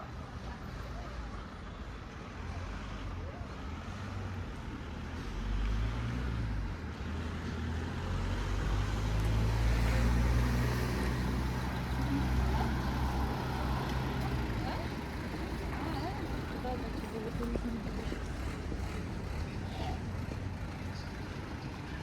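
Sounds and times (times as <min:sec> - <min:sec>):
street noise: 0:00.0 - 0:22.0
vehicle engine running: 0:07.8 - 0:22.0.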